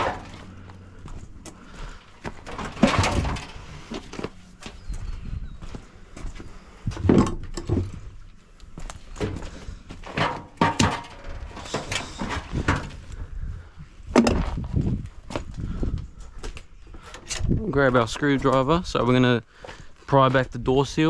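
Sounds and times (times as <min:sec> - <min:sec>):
knocks and clunks of machine parts: 0:00.0 - 0:00.5, 0:02.2 - 0:04.3, 0:06.9 - 0:08.1, 0:09.1 - 0:13.2, 0:14.1 - 0:14.6.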